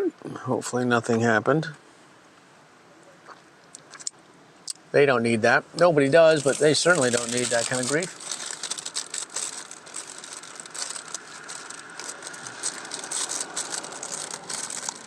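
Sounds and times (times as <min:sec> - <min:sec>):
snack packaging crinkling: 0:06.2 - 0:15.0.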